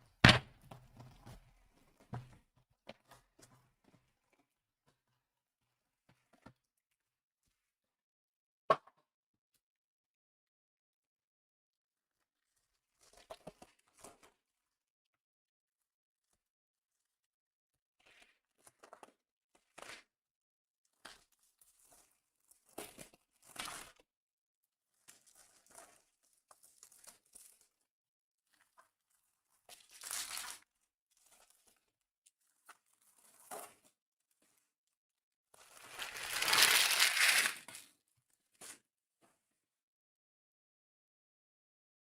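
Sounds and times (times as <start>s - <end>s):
packaging tearing and crinkling: 35.7s - 37.9s.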